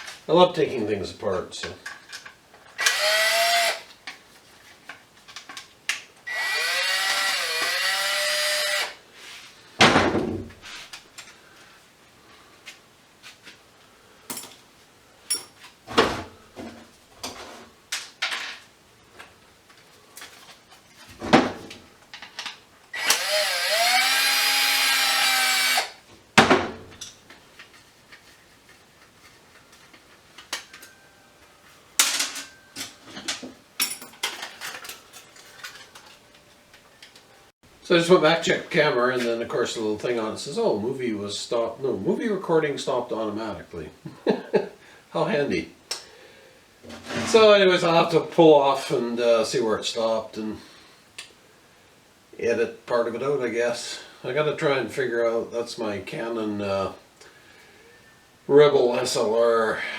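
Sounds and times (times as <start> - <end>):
electric drill whining: 2.8 - 3.9, 6.3 - 9.0, 22.9 - 26.0
metal parts knocking and clinking: 32.0 - 36.2.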